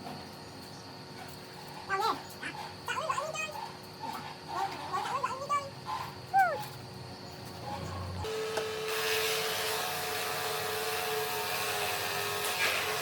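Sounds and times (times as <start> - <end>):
electric power tool whining: 8.2 - 13.0.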